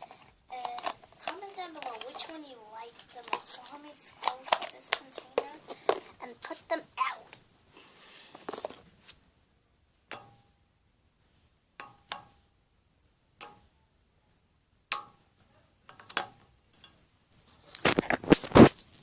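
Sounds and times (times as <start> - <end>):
plastic containers clicking: 0.0 - 7.4, 8.3 - 8.8.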